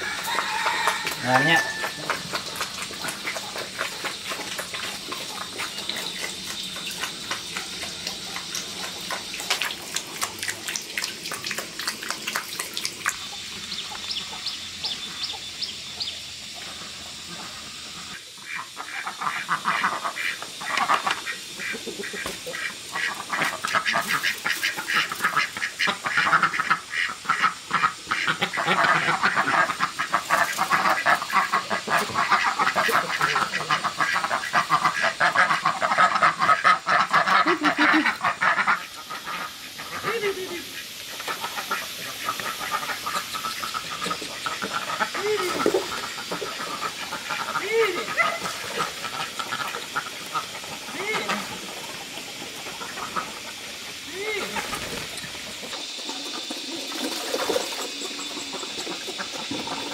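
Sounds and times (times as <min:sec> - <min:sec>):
ducks quacking: 0:13.7 - 0:59.9.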